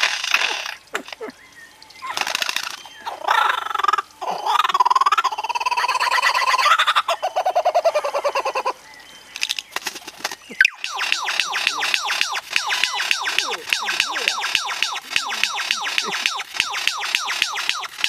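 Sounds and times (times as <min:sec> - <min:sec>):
bird downward-sliding chirps: 0:10.5 - 0:18.0.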